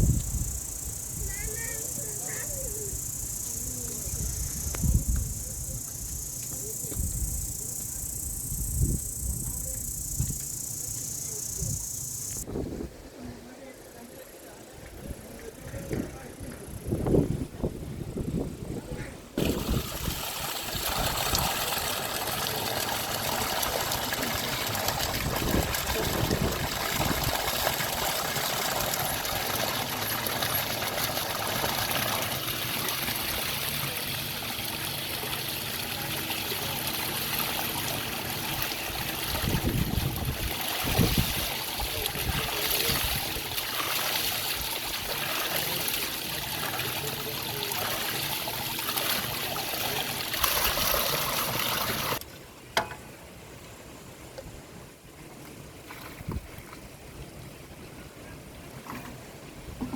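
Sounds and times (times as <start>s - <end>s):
water trickling and flowing: 19.4s - 59.9s.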